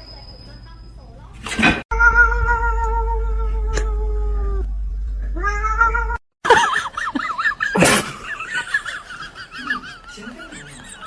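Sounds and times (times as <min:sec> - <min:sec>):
cat high-pitched wavering cries: 0:01.9 - 0:04.6, 0:05.4 - 0:06.2
cat meowing: 0:01.9 - 0:04.7, 0:05.4 - 0:06.2
cat yowling: 0:01.9 - 0:04.7, 0:05.4 - 0:06.2
sudden noisy burst: 0:02.0 - 0:06.2.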